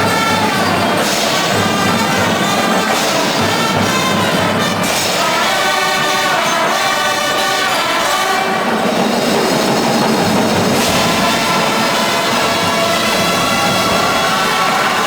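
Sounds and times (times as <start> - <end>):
marching band brass chords: 0.0 - 15.0.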